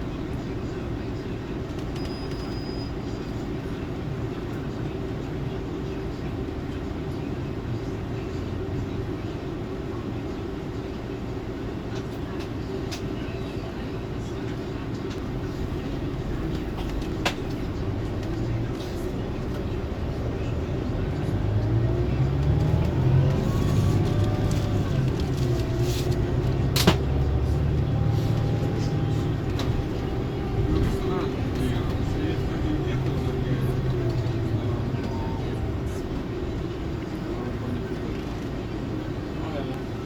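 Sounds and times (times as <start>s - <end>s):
coach engine and road noise: 0.0s - 40.0s.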